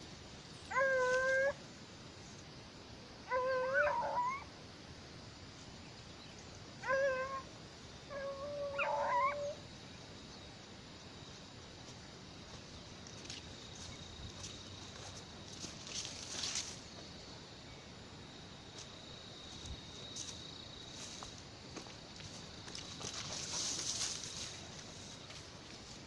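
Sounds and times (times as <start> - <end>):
hunting dog baying: 6.8 - 7.4.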